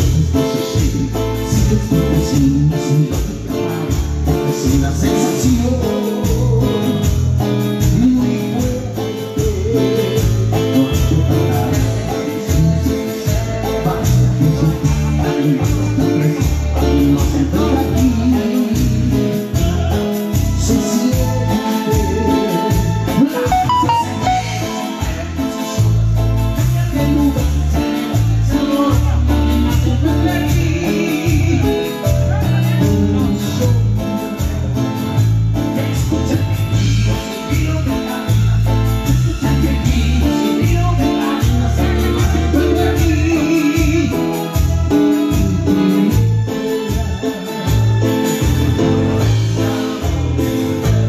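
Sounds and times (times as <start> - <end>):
person singing: 0.0 - 35.0
band playing latin music: 0.0 - 51.0
bass: 0.0 - 51.0
guitar: 0.0 - 51.0
hand percussion beat: 0.0 - 51.0
heavy bass line: 23.4 - 25.3.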